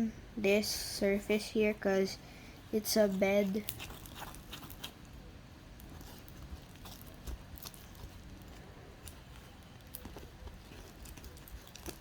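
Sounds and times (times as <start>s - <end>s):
sticky slime squishing: 2.7s - 12.0s.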